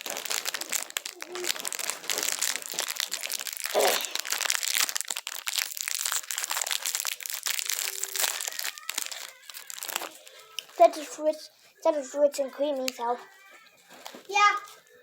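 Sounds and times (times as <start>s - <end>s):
cookie being eaten crunching: 0.0s - 10.8s
cookie packaging crinkling: 0.0s - 11.4s, 12.0s - 15.0s.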